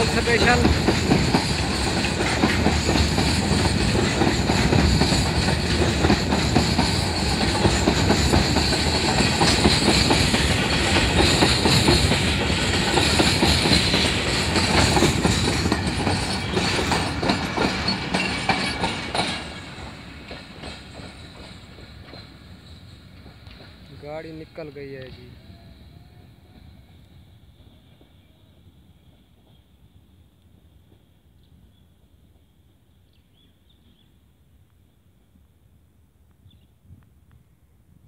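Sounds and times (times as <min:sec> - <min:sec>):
freight train wheels clattering: 0:00.0 - 0:25.2.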